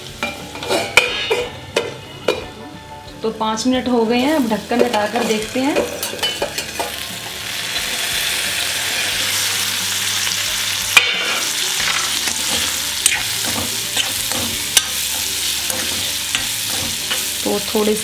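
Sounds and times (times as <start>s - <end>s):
food sizzling in oil: 4.2s - 18.0s.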